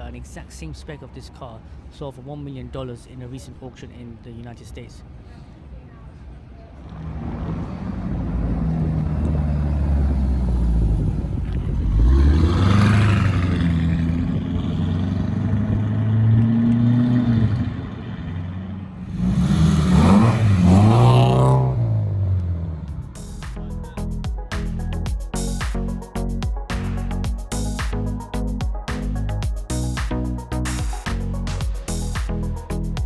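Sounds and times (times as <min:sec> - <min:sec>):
car engine pulling away: 0:06.9 - 0:24.0
second car revving hard: 0:07.0 - 0:17.9, 0:19.0 - 0:23.0.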